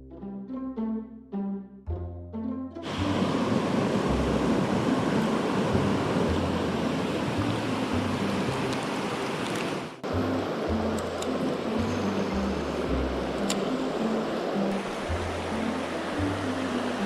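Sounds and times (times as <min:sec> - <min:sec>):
stream water rushing: 0:02.8 - 0:17.0
faint background music: 0:10.0 - 0:17.0.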